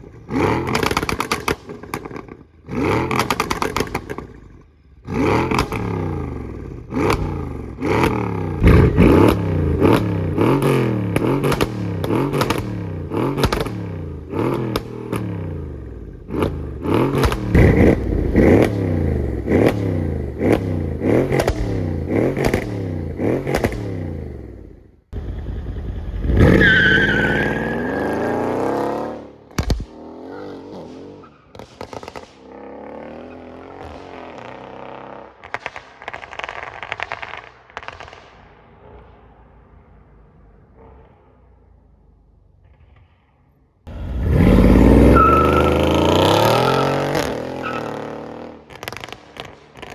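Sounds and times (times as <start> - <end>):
exhaust crackles and pops: 0.0 - 26.6, 29.5 - 30.0, 30.8 - 32.6, 33.6 - 39.4, 48.4 - 49.9
car engine revving: 0.0 - 32.2, 43.9 - 49.9
car accelerating hard: 5.1 - 32.0, 43.9 - 49.9.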